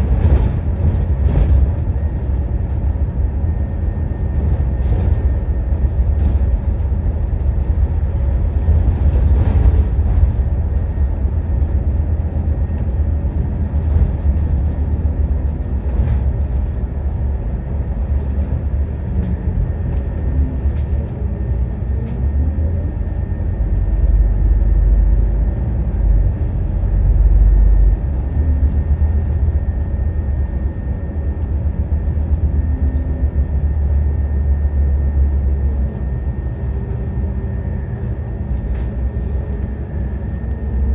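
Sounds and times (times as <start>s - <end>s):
bus diesel engine rumbling: 0.0s - 40.9s
thin steady whine: 16.5s - 40.9s.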